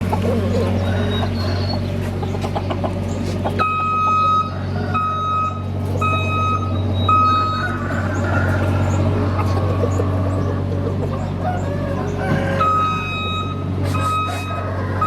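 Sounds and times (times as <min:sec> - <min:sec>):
constant low hum: 0:00.0 - 0:15.0
electronic beeps: 0:03.6 - 0:07.7, 0:12.6 - 0:14.6.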